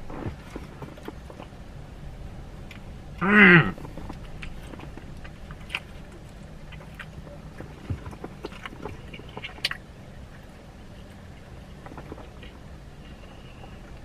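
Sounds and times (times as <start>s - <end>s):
faint low hum: 0.0s - 14.0s
person chewing with wet smacks: 3.6s - 14.0s.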